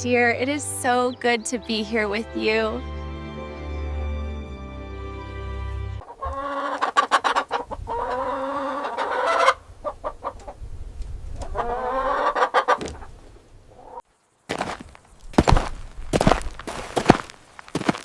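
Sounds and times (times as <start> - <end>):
chickens clucking: 6.0 - 14.0.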